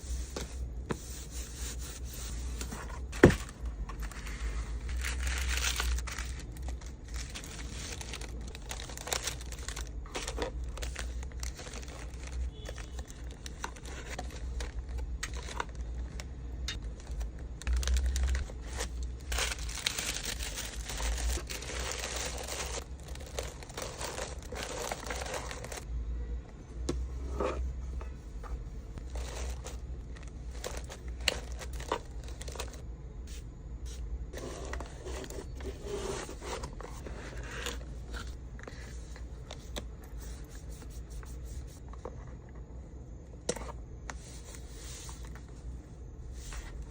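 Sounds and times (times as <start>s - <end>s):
steady low hum: 0.0s - 46.9s
packaging crinkling and tearing: 3.2s - 25.8s, 29.0s - 32.8s.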